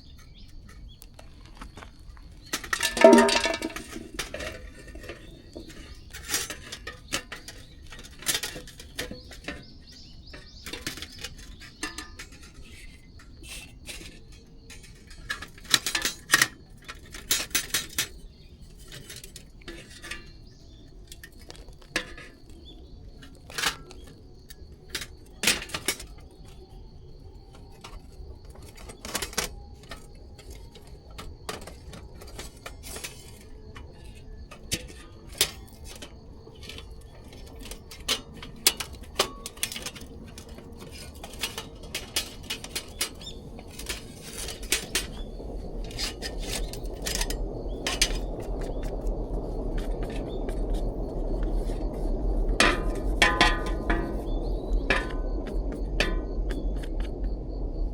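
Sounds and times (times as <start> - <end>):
metallic clinks and knocks: 2.7 - 4.6.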